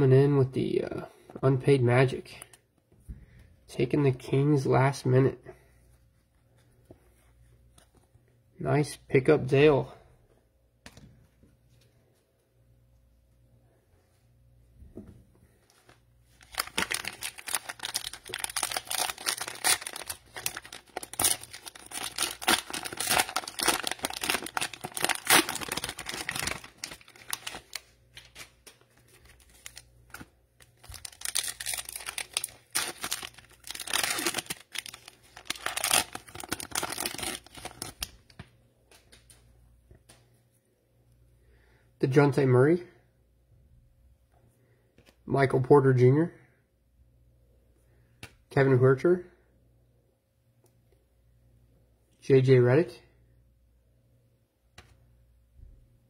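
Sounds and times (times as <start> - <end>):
cellophane wrapper crinkling: 15.8 - 39.3.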